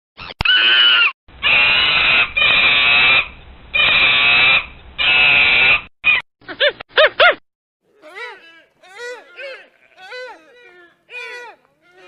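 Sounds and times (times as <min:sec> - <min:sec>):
monkey giving harsh calls: 0:07.9 - 0:12.0.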